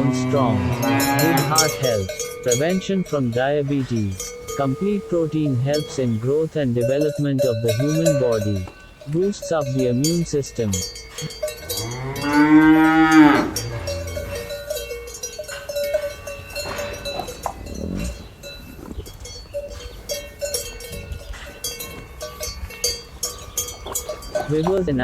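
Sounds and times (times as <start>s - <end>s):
cow mooing: 0.0s - 19.1s
cowbells clinking: 0.0s - 25.0s.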